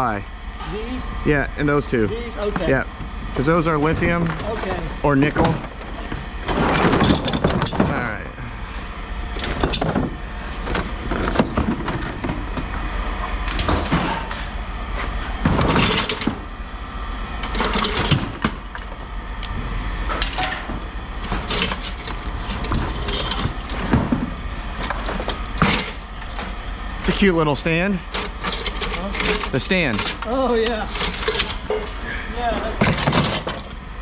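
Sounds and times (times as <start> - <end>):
steady low hum: 0.0 - 34.0
scrap metal clanking and rattling: 3.4 - 8.3, 9.4 - 12.7, 15.1 - 16.5, 17.4 - 19.1, 20.1 - 33.8.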